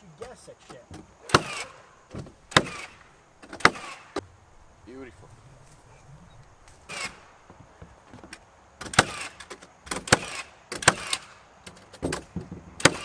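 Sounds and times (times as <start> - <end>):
nail gun shots: 0.2 - 4.2, 6.8 - 7.4, 8.8 - 13.0.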